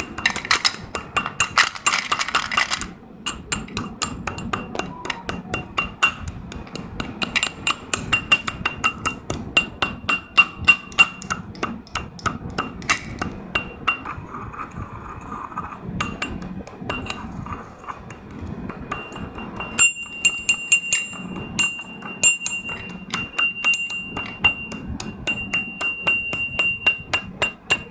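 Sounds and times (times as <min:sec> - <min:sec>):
slate pencils being crushed: 0:00.0 - 0:03.0.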